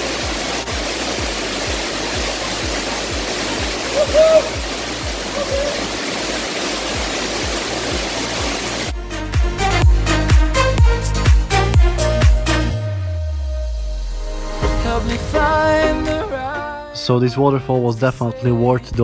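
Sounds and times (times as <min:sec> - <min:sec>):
music bass beat: 0:00.0 - 0:05.9, 0:07.0 - 0:16.3
waterfall rushing: 0:00.0 - 0:08.9.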